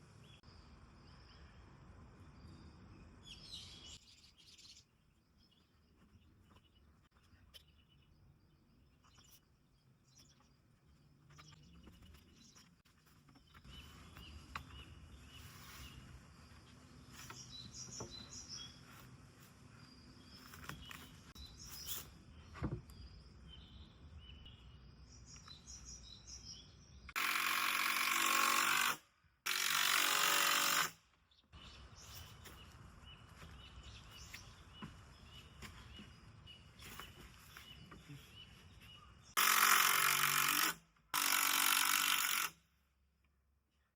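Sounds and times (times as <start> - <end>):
birds chirping: 2.3 - 27.2, 31.3 - 39.4
handheld power tool running: 27.2 - 31.0, 39.4 - 42.6.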